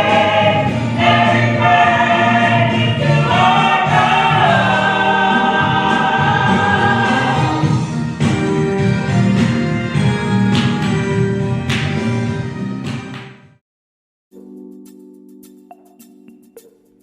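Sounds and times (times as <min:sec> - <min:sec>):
gospel choir singing: 0:00.0 - 0:08.5
instrumental accompaniment: 0:00.0 - 0:13.6, 0:14.3 - 0:17.0.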